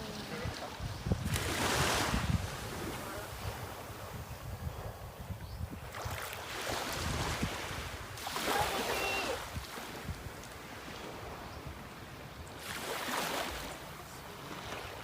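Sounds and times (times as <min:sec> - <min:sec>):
wind: 0:00.0 - 0:15.0
sea water splashing: 0:05.9 - 0:11.4, 0:12.6 - 0:15.0.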